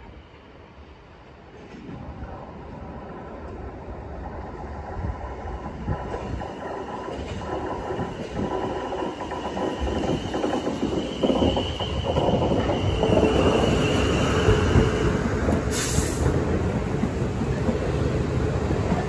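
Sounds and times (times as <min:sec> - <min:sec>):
train wheels rumbling on rails: 0:00.0 - 0:19.0
train whine: 0:00.0 - 0:19.0
brief hiss: 0:15.7 - 0:16.3.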